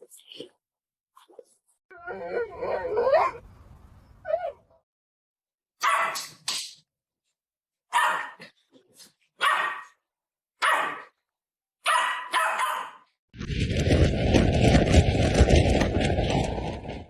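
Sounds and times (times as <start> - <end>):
dog barking: 5.8 - 6.2, 7.9 - 8.5, 9.4 - 10.0, 10.6 - 11.1, 11.8 - 13.1.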